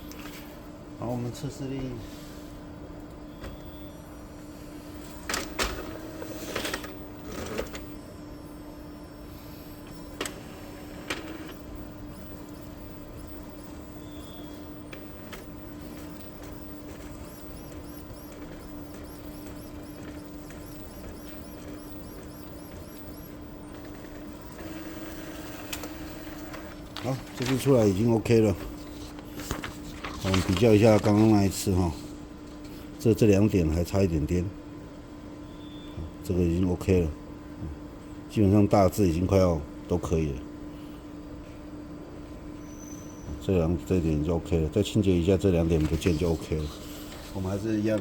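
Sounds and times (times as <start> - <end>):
printer mechanical hum: 0.0 - 48.0
faint high chirp: 3.3 - 4.0, 12.2 - 23.3, 35.4 - 36.0, 42.6 - 43.4.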